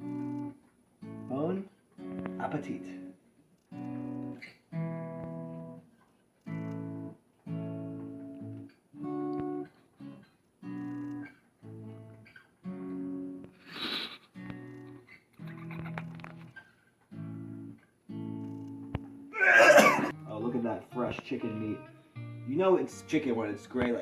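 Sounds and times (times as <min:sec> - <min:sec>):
acoustic guitar strumming chords: 0:00.0 - 0:03.2, 0:06.5 - 0:13.6, 0:17.1 - 0:24.0
brief hiss: 0:13.6 - 0:14.3.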